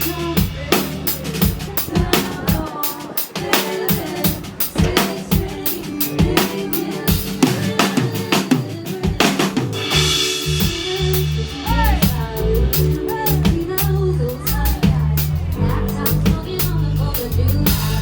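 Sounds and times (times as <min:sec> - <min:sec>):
bass line: 0:00.0 - 0:02.6, 0:09.8 - 0:18.0
drum kit beat: 0:00.0 - 0:18.0.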